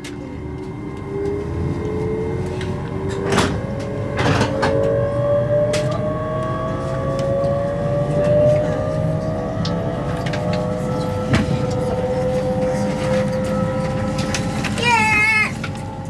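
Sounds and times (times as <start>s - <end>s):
train traction motors whining: 0.0s - 16.0s
clunks and rattles: 3.1s - 4.9s.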